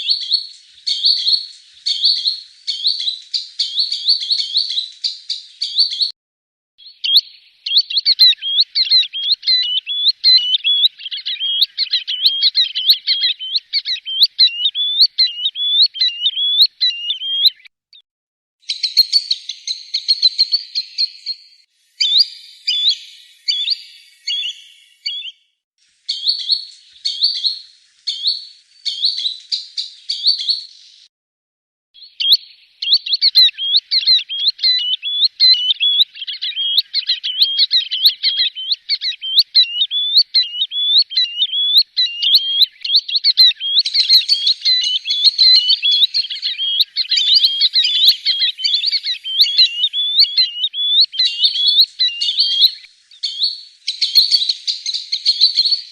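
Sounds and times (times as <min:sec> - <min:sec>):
sandpiper whistled calls: 0:06.8 - 0:17.7, 0:22.0 - 0:25.4, 0:32.0 - 0:55.9.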